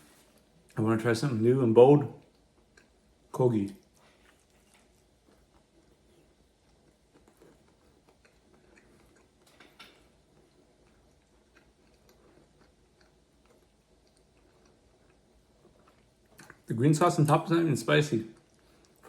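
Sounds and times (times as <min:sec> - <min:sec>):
chewing mouth clicks and smacks: 0:02.2 - 0:16.7, 0:18.3 - 0:19.0.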